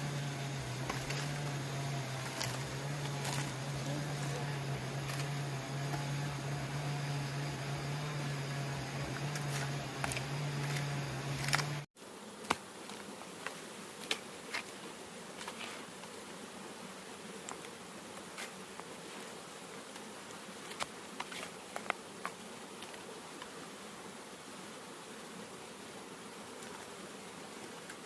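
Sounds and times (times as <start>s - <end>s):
steady low hum: 0.0s - 11.9s
insect buzzing: 0.0s - 28.0s.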